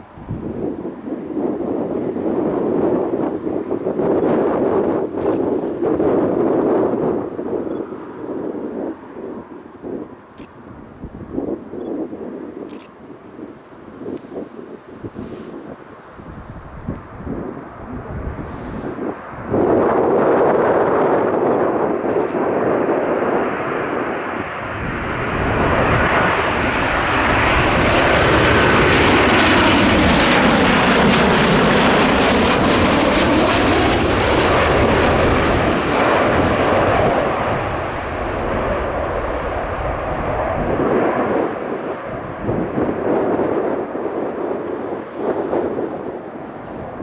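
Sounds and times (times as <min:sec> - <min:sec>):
aircraft engines passing: 0:00.0 - 0:47.0.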